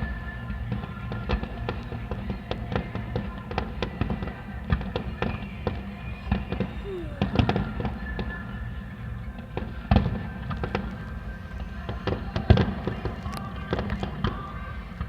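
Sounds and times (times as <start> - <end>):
fireworks bangs: 6.2 - 8.2
fireworks crackling and popping: 9.6 - 14.7.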